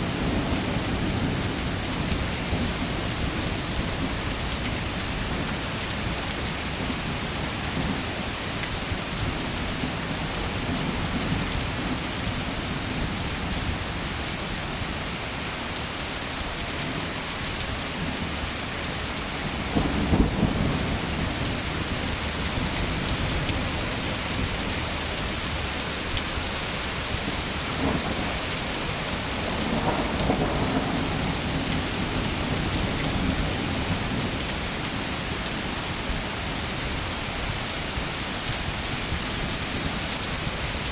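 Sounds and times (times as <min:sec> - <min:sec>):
steady rain hiss: 0:00.0 - 0:40.9
thunder rumble: 0:19.4 - 0:26.6, 0:27.2 - 0:35.8.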